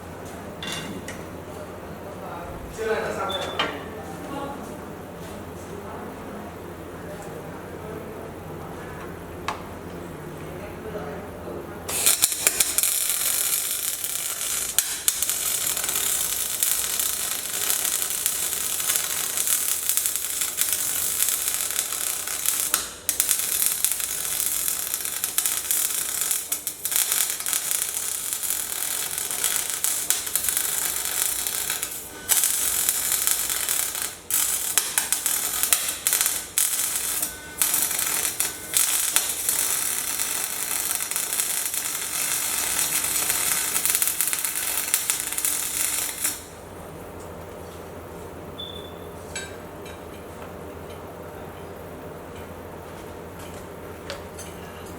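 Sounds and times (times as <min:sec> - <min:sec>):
arc welding crackling hiss: 0:11.9 - 0:46.6.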